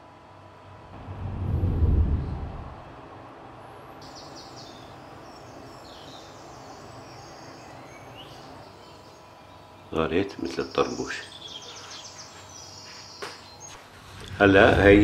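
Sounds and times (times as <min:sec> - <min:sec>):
bird chirps and twittering: 0:04.0 - 0:09.9, 0:10.6 - 0:13.8.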